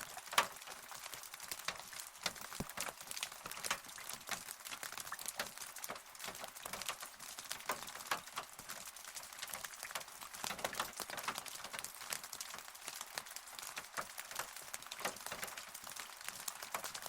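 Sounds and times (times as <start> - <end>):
rain drops striking close: 0.0 - 17.0
rain hiss: 0.0 - 17.0.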